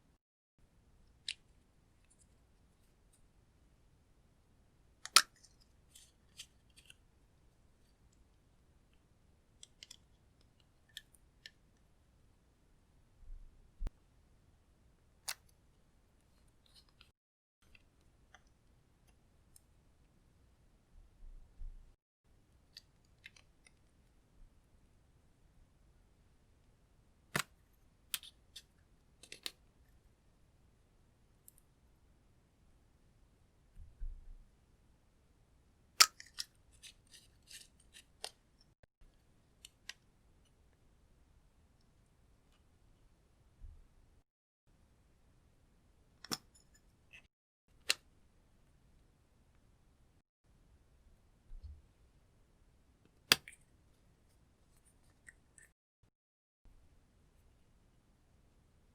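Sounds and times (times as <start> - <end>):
small handling clicks: 28.2 - 29.6.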